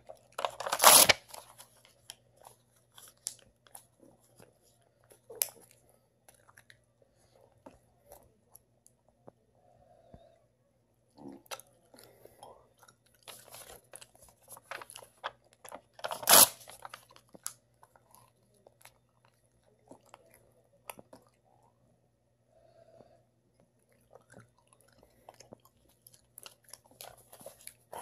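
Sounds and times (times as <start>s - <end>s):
person chewing paper: 0.0s - 8.7s, 11.2s - 21.8s, 23.0s - 28.0s
paper crackling: 0.2s - 3.9s, 13.2s - 17.4s.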